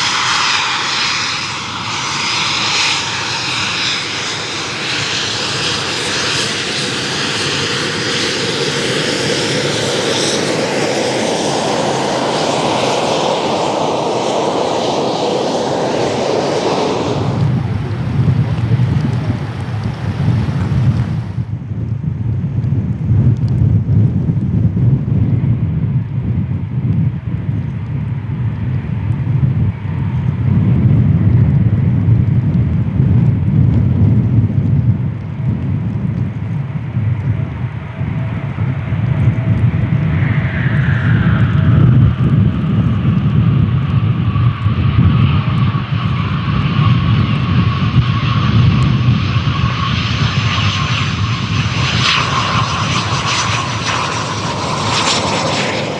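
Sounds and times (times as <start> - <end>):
jet engines roaring: 10.4 - 21.4, 37.6 - 55.9
wind buffeting microphone: 16.3 - 21.5, 30.6 - 55.9.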